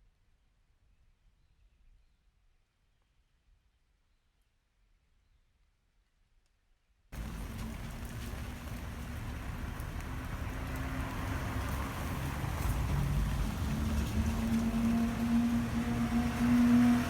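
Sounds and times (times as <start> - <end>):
steady rain: 7.2 - 17.0.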